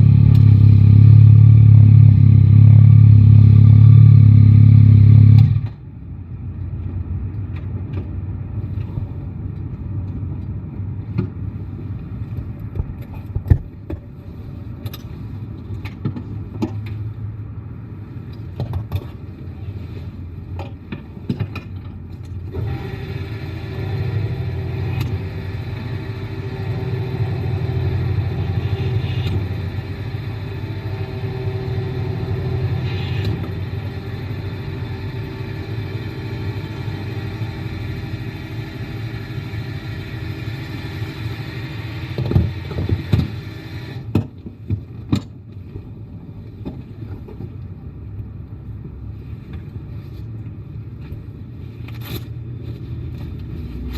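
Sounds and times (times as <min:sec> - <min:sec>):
motorcycle engine rumbling: 0:00.0 - 0:05.9, 0:21.8 - 0:43.4
steady hum: 0:19.3 - 0:44.2.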